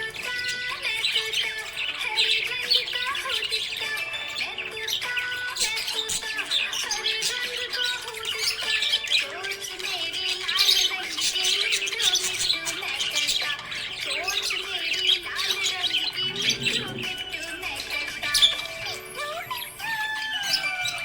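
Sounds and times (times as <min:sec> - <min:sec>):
budgies chirping and squawking: 0:00.0 - 0:21.0.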